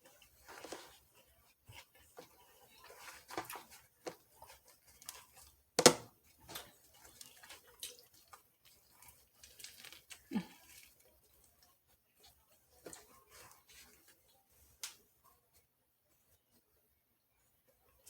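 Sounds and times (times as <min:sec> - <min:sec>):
eating smacks and crinkles: 0:00.1 - 0:05.6, 0:06.3 - 0:15.1.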